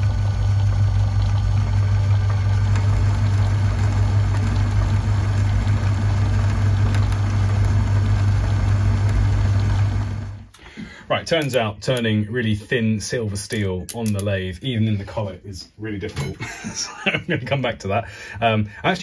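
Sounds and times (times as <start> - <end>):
metal lathe motor humming: 0.0 - 10.5.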